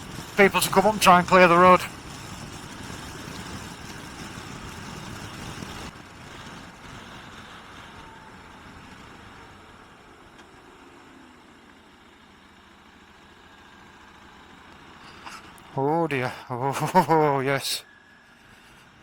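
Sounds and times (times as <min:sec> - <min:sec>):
motorcycle engine: 0:00.0 - 0:07.8
wind rush on microphone: 0:01.9 - 0:08.3.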